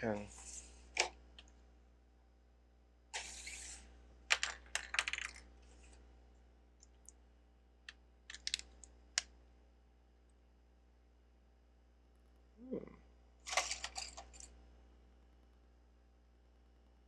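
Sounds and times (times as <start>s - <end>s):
plastic bricks clicking: 4.3s - 5.4s, 8.3s - 8.8s
plastic bricks rustling: 8.3s - 8.6s.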